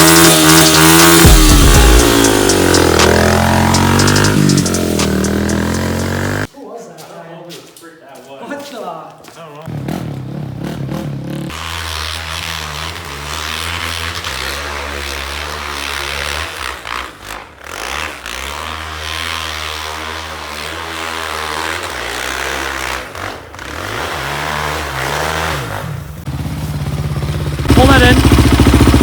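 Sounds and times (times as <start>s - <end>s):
off-road engine revving: 0.0s - 6.5s, 9.6s - 29.0s.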